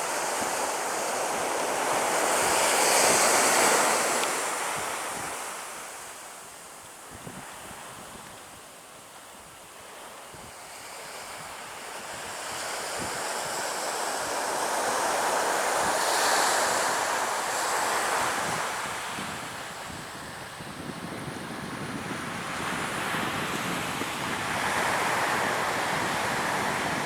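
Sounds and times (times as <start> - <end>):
wind buffeting microphone: 18.4 - 27.0
surf breaking on beach: 21.7 - 27.0.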